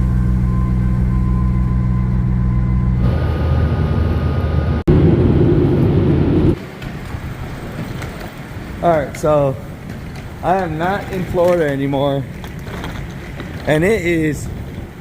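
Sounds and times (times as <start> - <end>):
vehicle running hum: 0.0 - 11.5.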